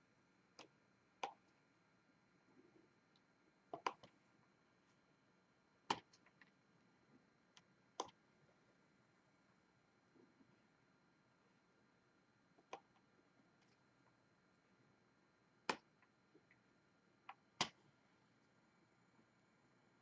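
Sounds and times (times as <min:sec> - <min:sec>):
small plastic clicks and taps: 0:03.1 - 0:04.2, 0:05.9 - 0:06.6, 0:07.6 - 0:08.2, 0:17.3 - 0:17.9.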